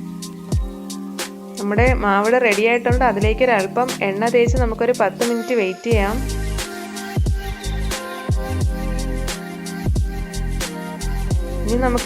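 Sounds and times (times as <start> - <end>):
background music with steady beat: 0.0 - 12.0
deep bass drum hits: 1.8 - 2.1, 2.9 - 3.4, 4.5 - 4.8.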